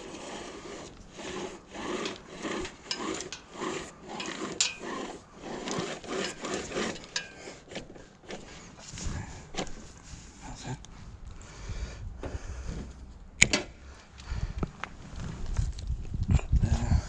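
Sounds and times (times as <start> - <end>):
hand tool rasping strokes: 0.0 - 9.9.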